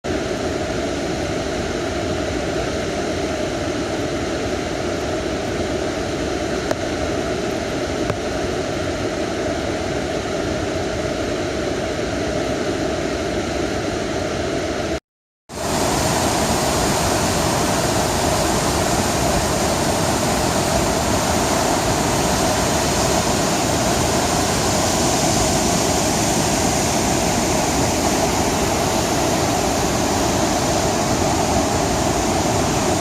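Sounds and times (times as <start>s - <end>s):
rushing water: 15.5s - 33.0s.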